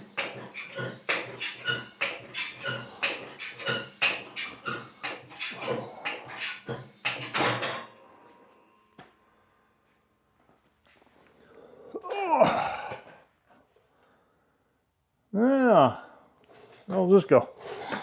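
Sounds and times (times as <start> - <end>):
metallic mechanism squeaks: 0.0 - 8.0.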